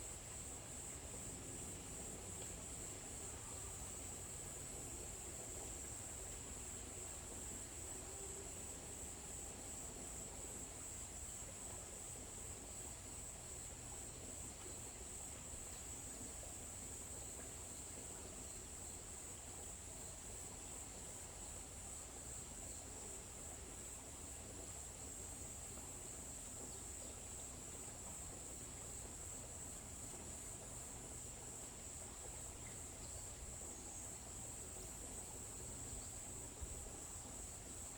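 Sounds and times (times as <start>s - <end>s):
faint low ambient noise: 0.0s - 37.9s.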